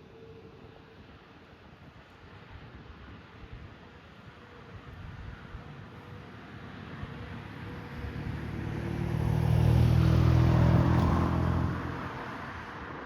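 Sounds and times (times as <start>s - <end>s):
vehicle passing by: 7.4s - 12.7s.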